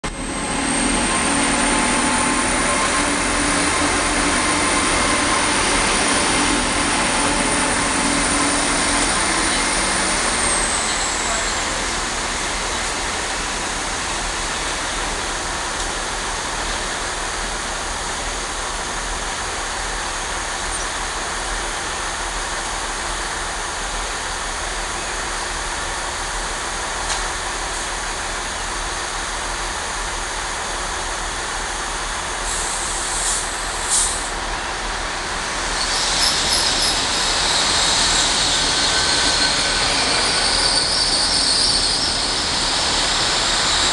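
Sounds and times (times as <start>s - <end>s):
trains rumbling and hissing: 0.0s - 43.9s
high-pitched wheel squeal: 35.8s - 43.9s.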